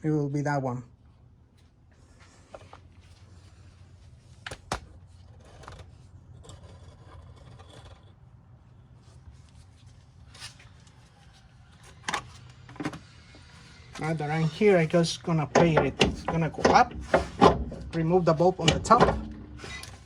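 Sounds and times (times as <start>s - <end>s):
low steady hum: 0.0s - 20.0s
tools rubbing and scraping: 5.2s - 11.2s, 13.1s - 20.0s.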